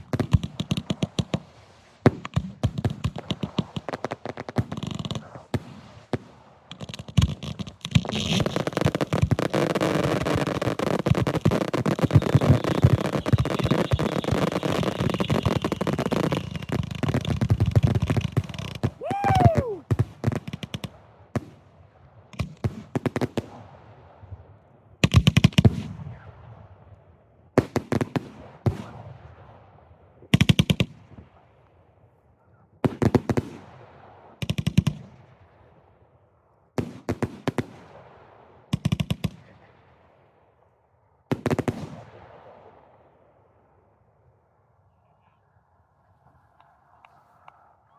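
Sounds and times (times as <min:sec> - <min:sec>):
fireworks launches and bursts: 0:00.0 - 0:21.6
firework whistle: 0:12.2 - 0:17.2, 0:18.6 - 0:19.9.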